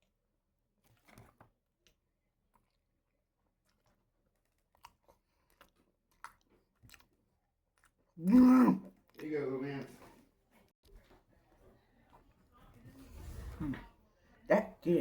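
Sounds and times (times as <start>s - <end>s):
chewing and mouth sounds: 0.8s - 9.4s.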